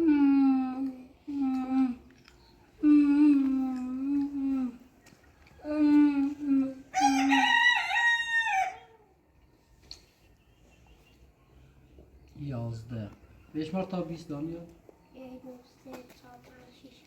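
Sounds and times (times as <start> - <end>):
rooster crowing: 6.9 - 9.1.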